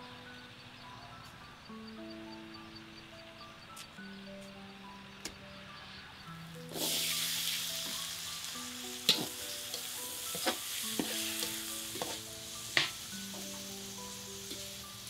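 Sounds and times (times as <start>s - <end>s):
food sizzling in a wok: 6.5s - 15.0s
metal spatula scraping wok: 6.7s - 13.6s.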